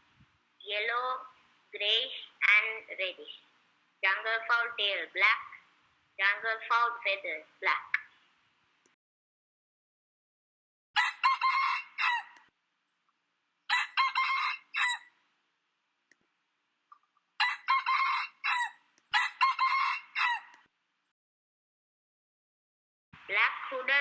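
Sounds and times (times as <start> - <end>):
junglefowl crowing: 11.0 - 12.5, 13.7 - 15.2, 17.4 - 20.7.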